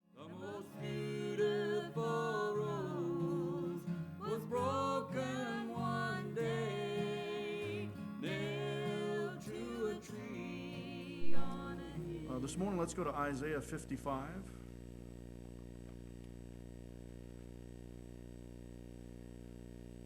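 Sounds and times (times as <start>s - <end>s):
person singing with vibrato: 0.2s - 13.0s.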